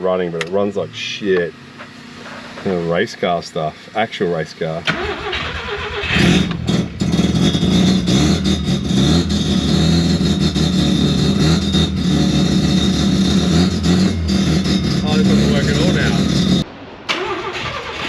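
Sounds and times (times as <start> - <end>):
rotary engine running roughly: 6.0 - 16.6.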